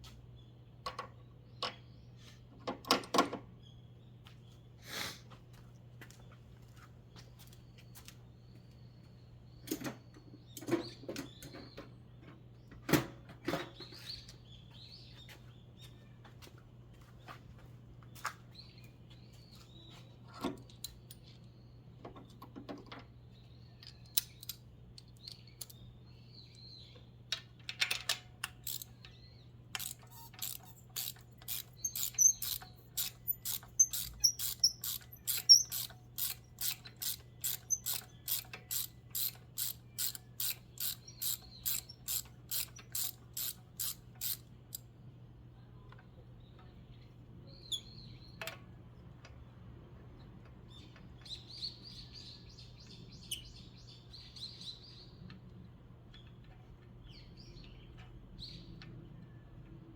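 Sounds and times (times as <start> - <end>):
ratchet wrench clicking: 28.4 - 29.0, 29.8 - 44.8
birds chirping: 28.6 - 49.6, 50.2 - 59.3
hand tools clicking and knocking: 29.8 - 44.8.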